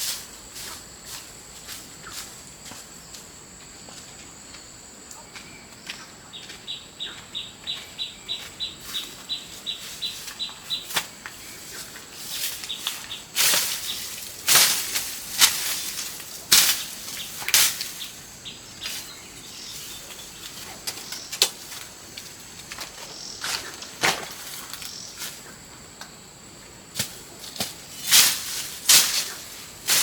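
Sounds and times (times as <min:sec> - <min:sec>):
sharp swishing or rustling: 0:11.7 - 0:18.1.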